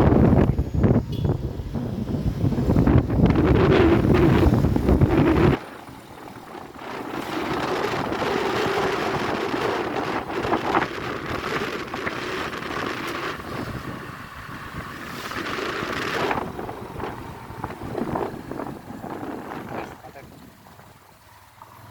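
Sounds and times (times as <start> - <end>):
wind buffeting microphone: 0.0 - 21.2
motorcycle engine running: 0.0 - 21.9.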